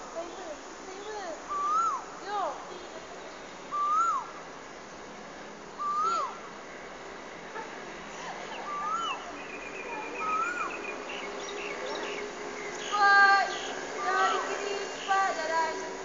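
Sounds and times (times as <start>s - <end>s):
bird whistling rising and falling: 1.5s - 2.1s, 3.7s - 4.4s, 5.8s - 6.4s, 8.3s - 15.4s
high bird chirps: 8.5s - 13.9s.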